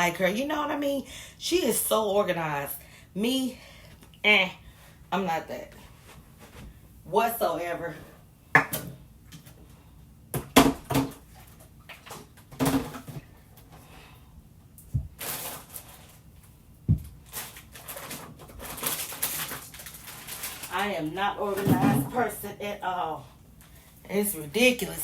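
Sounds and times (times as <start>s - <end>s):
household items knocking and clattering: 8.6s - 9.0s, 10.3s - 11.3s, 12.0s - 13.3s, 16.9s - 17.2s, 21.5s - 22.3s
rustling: 14.9s - 21.0s.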